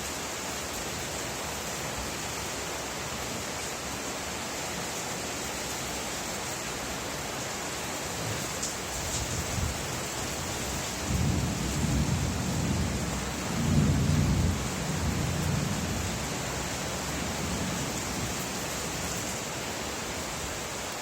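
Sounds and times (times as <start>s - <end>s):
rain hiss: 0.0s - 21.0s
low roll of thunder: 11.0s - 16.3s.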